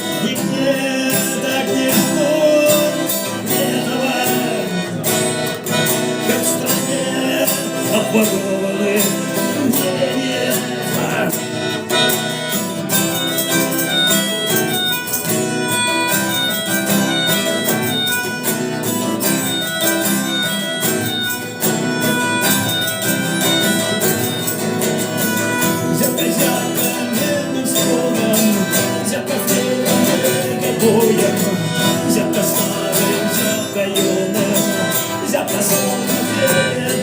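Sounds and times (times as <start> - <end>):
lead guitar melody: 0.0 - 37.0
rock band playing: 0.0 - 37.0.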